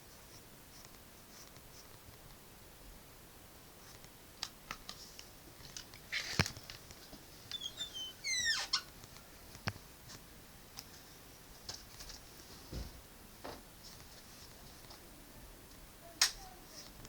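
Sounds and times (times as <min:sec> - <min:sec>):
pencil scratching on paper: 0:00.1 - 0:02.0
squeaky chirps: 0:07.5 - 0:08.9.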